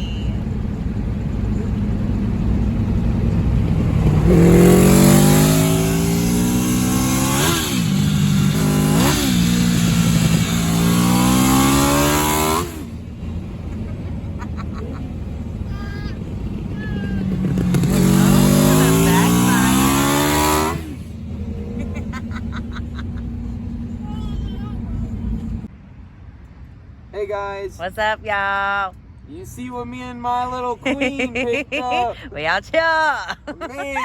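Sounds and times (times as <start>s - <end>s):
motorcycle engine accelerating hard: 0.9s - 25.7s.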